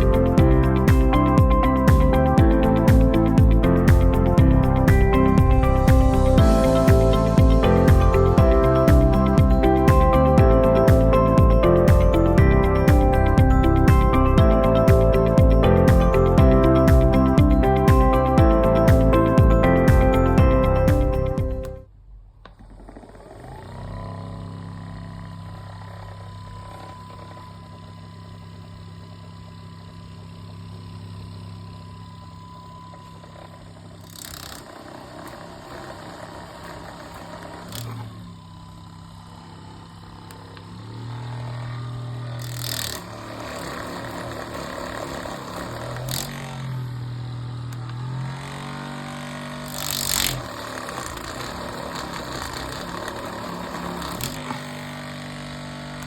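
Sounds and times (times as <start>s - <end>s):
massage gun motor humming: 0.0s - 56.0s.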